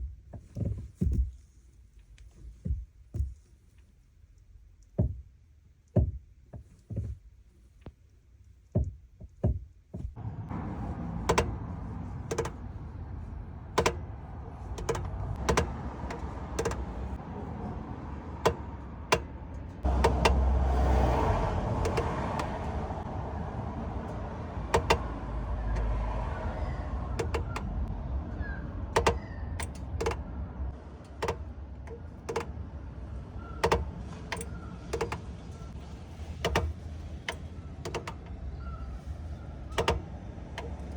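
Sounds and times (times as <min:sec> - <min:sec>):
clutch knocking: 0:08.7 - 0:40.9
engine low drone: 0:10.2 - 0:40.9.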